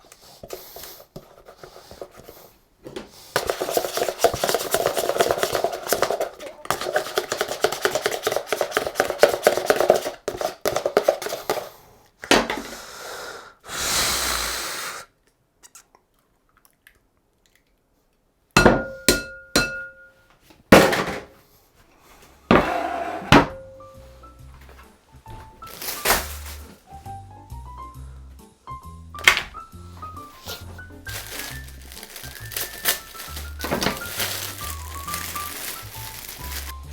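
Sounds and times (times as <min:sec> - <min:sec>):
rapid tapping of utensils: 0:03.4 - 0:11.7
short hiss: 0:13.7 - 0:15.1
dishes and utensils clinking: 0:18.6 - 0:20.2
soft background music: 0:22.4 - 0:36.9.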